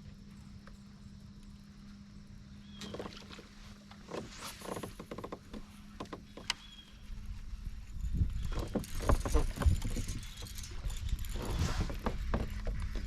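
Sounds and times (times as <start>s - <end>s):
faint low hum: 0.0s - 13.0s
gear knocking and rustling: 2.8s - 13.0s.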